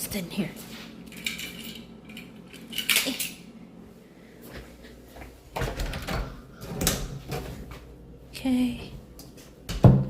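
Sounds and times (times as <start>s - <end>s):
household items clattering: 1.1s - 3.4s.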